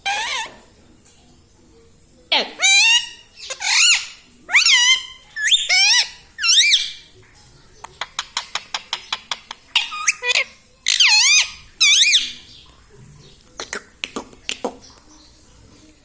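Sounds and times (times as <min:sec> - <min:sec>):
parrot high-pitched calls: 0:00.0 - 0:00.6, 0:02.3 - 0:07.0, 0:09.7 - 0:12.4.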